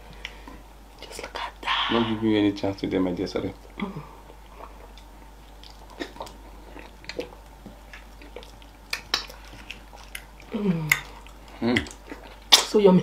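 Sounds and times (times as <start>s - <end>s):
wet chewing and lip smacks: 4.2s - 12.7s.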